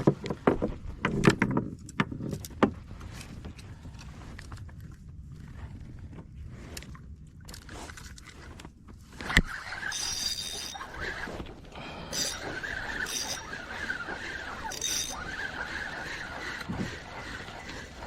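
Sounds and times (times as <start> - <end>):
fishing reel whining: 9.4 - 18.0
high squeaks: 9.4 - 18.0
fishing reel click: 9.5 - 11.2, 12.1 - 15.7.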